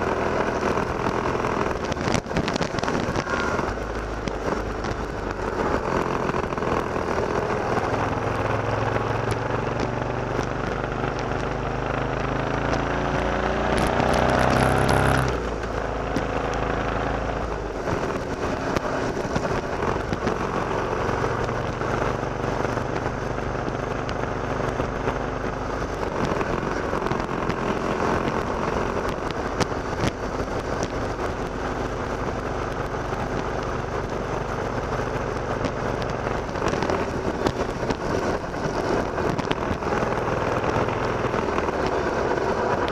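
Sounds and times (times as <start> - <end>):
motorcycle engine accelerating: 0.0 - 42.9.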